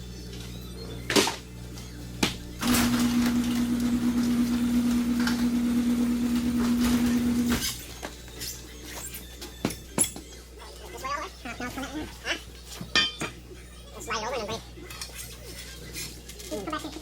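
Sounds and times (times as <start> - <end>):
hydraulic whine: 2.6 - 7.7.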